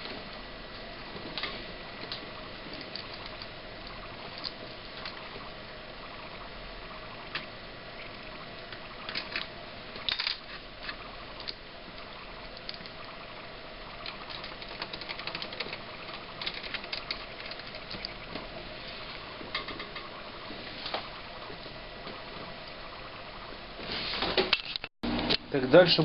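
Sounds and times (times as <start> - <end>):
faint steady hum: 0.0 - 26.0
rapid ticks: 1.4 - 5.4, 10.9 - 18.4.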